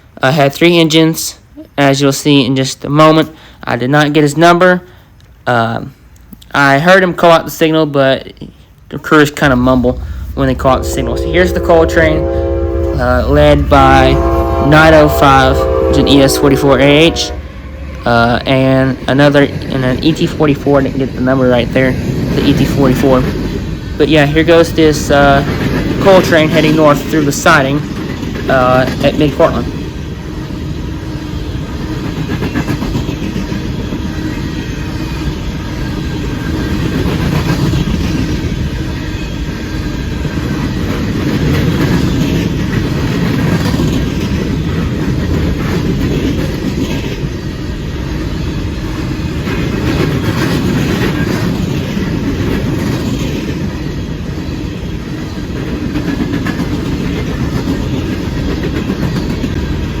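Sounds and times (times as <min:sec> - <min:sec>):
train cars rumbling past: 0:00.0 - 1:00.0
wheels clicking over rail joints: 0:48.9 - 1:00.0.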